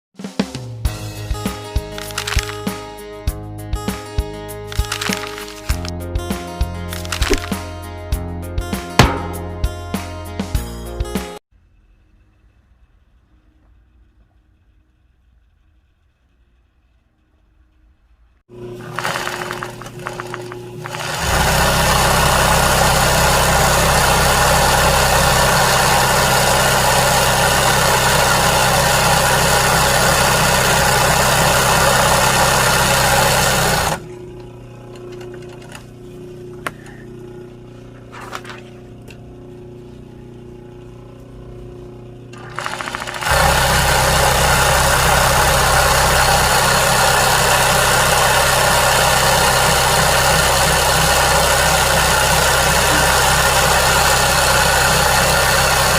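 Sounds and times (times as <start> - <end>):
sewing machine running: 18.5 - 34.2, 42.3 - 55.9.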